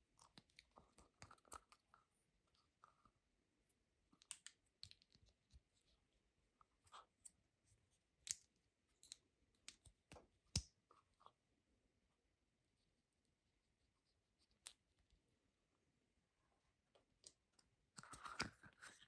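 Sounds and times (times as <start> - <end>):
small objects clicking and tapping: 4.2 - 5.6, 8.2 - 10.8.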